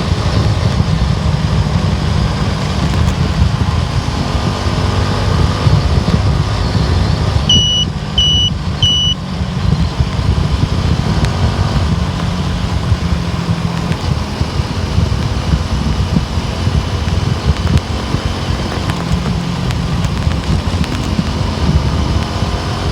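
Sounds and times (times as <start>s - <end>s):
car road and engine rumble: 0.0s - 22.9s
short high electronic beeps: 7.5s - 9.3s.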